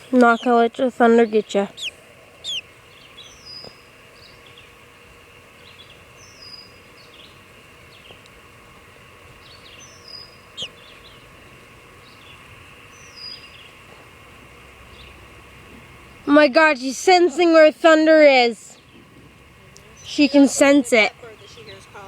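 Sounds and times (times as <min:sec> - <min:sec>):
faint background hum: 0:00.0 - 0:22.0
bird chirps: 0:01.2 - 0:04.8, 0:05.6 - 0:08.2, 0:09.4 - 0:11.3, 0:12.0 - 0:13.8.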